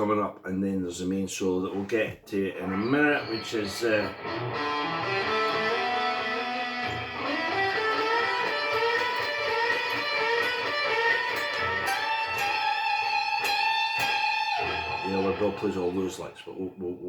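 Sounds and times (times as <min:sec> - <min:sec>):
electric guitar melody: 0:02.6 - 0:16.2.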